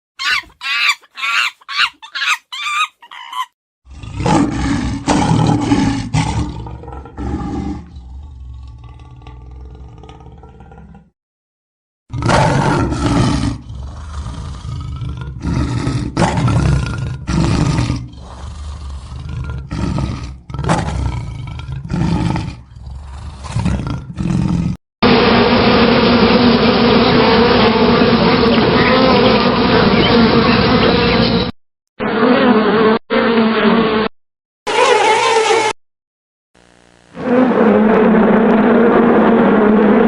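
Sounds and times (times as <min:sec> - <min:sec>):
deep animal roars: 0:03.9 - 0:11.2, 0:12.1 - 0:24.8, 0:37.2 - 0:40.0
pitched buzzing drone: 0:25.0 - 0:34.1, 0:36.6 - 0:37.9.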